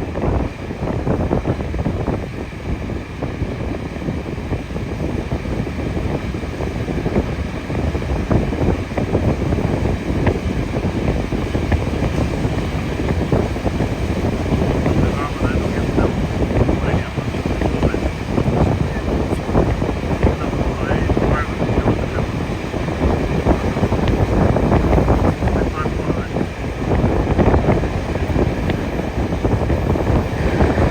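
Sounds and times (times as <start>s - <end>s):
moving train rumble: 0.0s - 30.9s.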